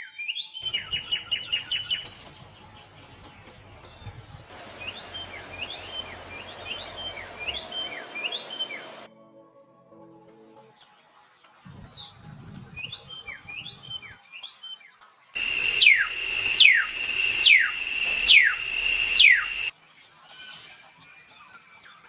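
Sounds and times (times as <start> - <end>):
sharp falling bird calls: 15.4 - 19.7
soft bird chirps: 15.4 - 19.7
steady high-pitched tone: 15.4 - 19.7.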